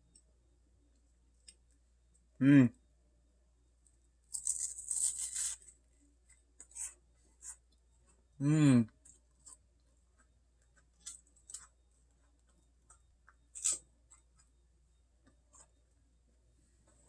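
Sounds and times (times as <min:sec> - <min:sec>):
cracker crunching: 0:03.8 - 0:07.6, 0:09.0 - 0:14.6
person humming: 0:08.4 - 0:08.9.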